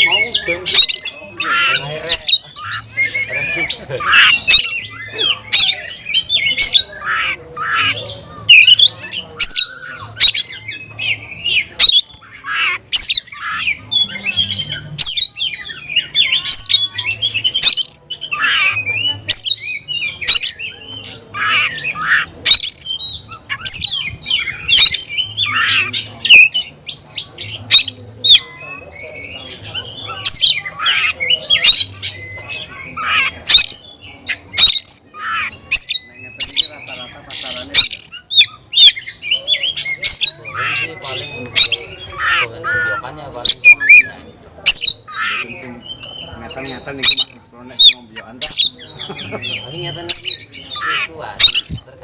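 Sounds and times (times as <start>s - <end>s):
bird chattering and whistling: 0.0s - 52.0s.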